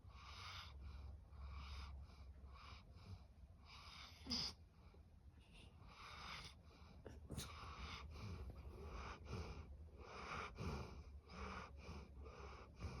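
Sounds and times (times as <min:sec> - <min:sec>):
dog snoring: 0:07.3 - 0:13.0.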